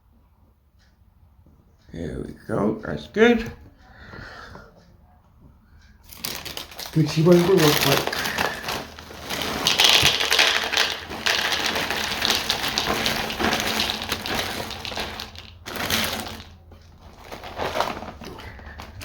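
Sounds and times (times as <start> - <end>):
dry cereal poured into a bowl: 6.2 - 19.0.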